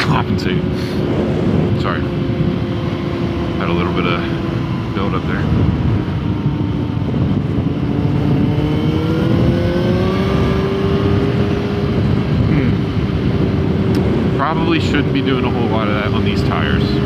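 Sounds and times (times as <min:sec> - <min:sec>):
motorcycle engine accelerating: 0:00.0 - 0:17.0
wind noise on microphone: 0:00.0 - 0:17.0.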